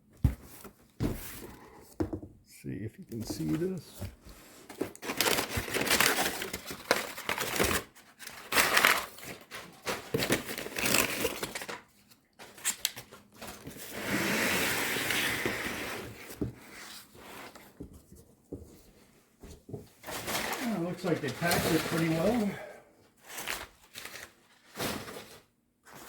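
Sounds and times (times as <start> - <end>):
cardboard tearing: 4.8 - 11.8
packing material crinkling: 4.9 - 11.8, 20.2 - 22.6.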